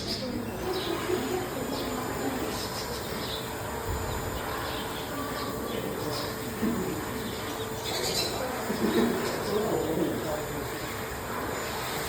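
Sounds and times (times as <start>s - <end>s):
bird chirps and coos: 0.0s - 10.2s
distant voices: 0.0s - 12.0s
steady background hum: 0.0s - 12.0s.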